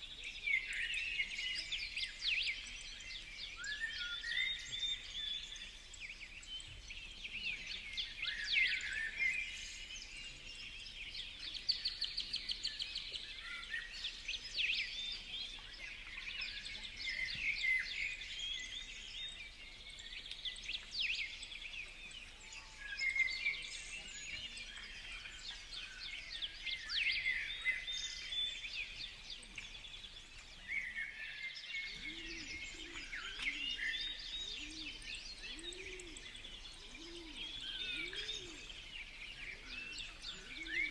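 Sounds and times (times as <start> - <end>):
small birds chirping: 0.0 - 40.9
low cooing calls: 31.9 - 40.9.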